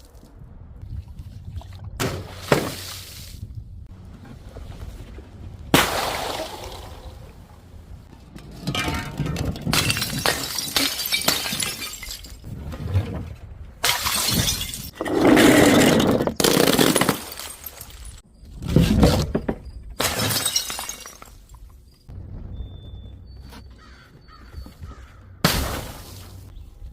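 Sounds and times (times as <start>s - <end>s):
glass bottles shattering: 8.5s - 12.5s, 13.8s - 18.2s, 18.8s - 21.8s.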